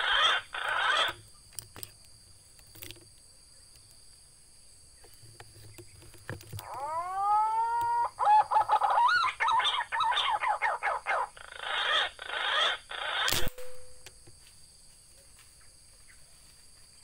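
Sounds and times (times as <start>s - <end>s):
loud bird call: 0.0s - 1.2s, 6.6s - 13.5s
harsh rasping bird calls: 0.0s - 1.4s, 5.0s - 13.5s.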